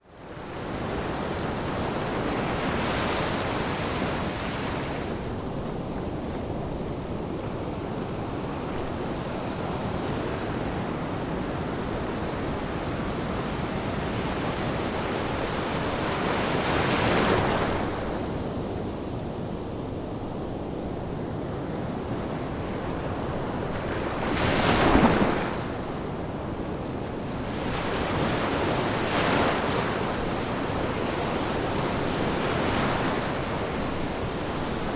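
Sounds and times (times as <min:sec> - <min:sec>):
ocean waves crashing on beach: 0:21.2 - 0:34.9.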